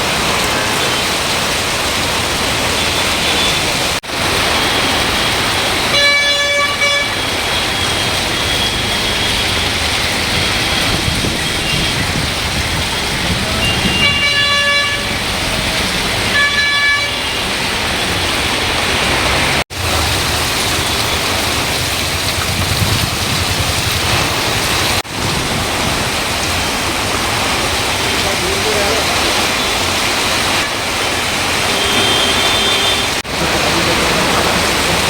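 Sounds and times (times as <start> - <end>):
heavy rain: 0.0 - 35.0
road traffic: 0.0 - 35.0
vehicle horn honking: 5.8 - 7.8, 13.6 - 15.2, 16.3 - 17.5, 31.6 - 35.0.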